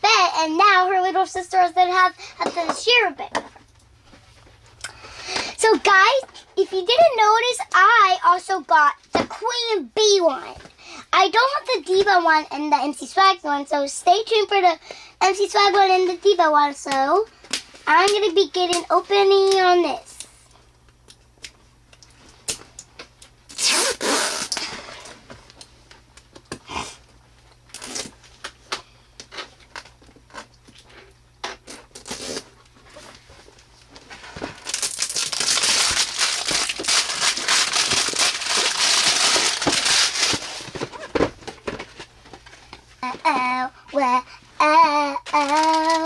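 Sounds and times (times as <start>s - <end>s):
packaging tearing and rustling: 34.1s - 42.0s, 45.3s - 46.0s.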